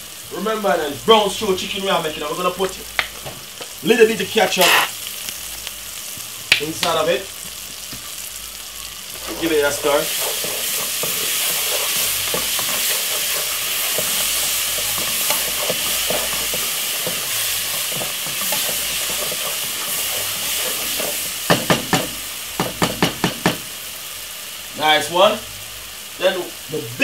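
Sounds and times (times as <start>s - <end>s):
food sizzling in hot oil: 0.0s - 27.0s
wooden spoon stirring and scraping: 9.1s - 21.8s.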